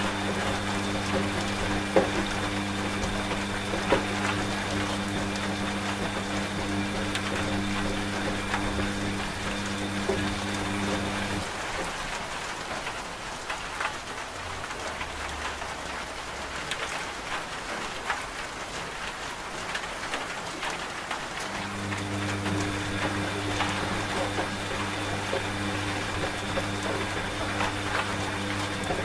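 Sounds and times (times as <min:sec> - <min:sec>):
washing machine motor hum: 0:00.0 - 0:11.8, 0:21.4 - 0:29.0
raindrop taps: 0:00.0 - 0:18.4, 0:19.1 - 0:29.0
steady rain: 0:00.0 - 0:29.0.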